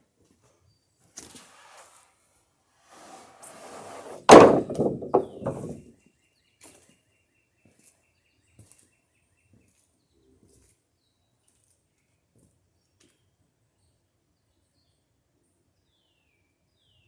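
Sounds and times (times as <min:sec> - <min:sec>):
wooden boards knocking together: 0:03.6 - 0:05.8.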